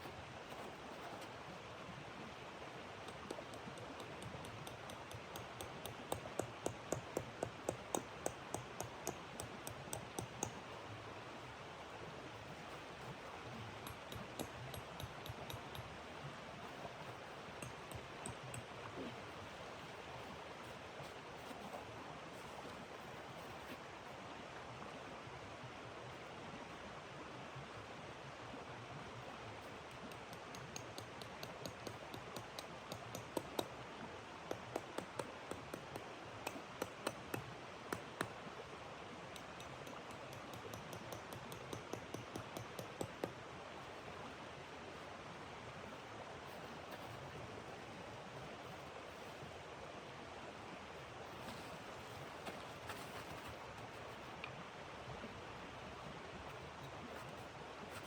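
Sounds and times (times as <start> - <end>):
steady rushing hiss: 39.0 - 58.0.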